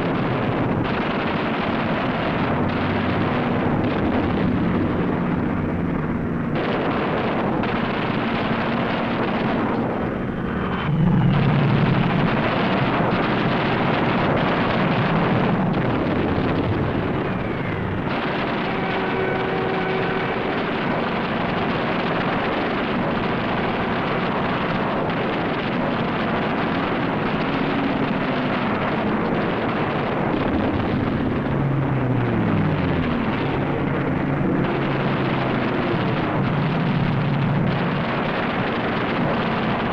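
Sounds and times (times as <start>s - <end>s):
propeller aircraft engines droning: 0.0s - 39.9s.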